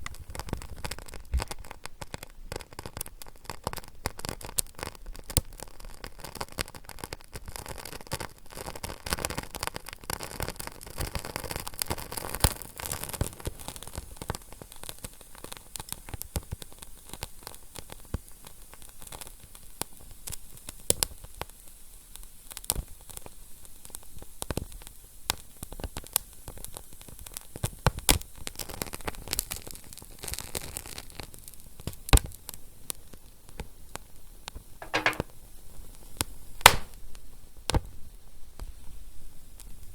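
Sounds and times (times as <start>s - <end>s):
fire crackling and popping: 36.6s - 37.0s.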